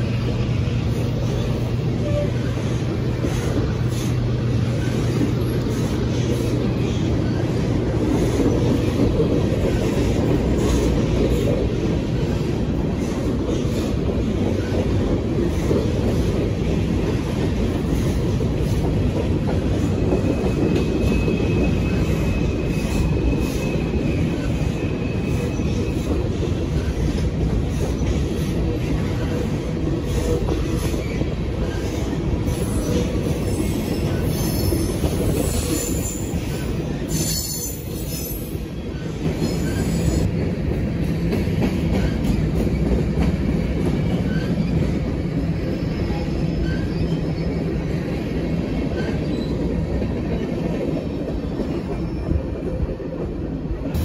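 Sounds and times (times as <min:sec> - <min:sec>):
freight train rumbling past: 0:00.0 - 0:54.0
faint wheel squeal: 0:45.6 - 0:47.6.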